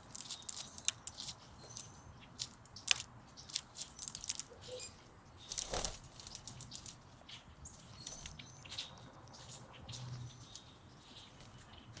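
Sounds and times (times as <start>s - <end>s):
bird nibbling leaves: 0.0s - 4.6s.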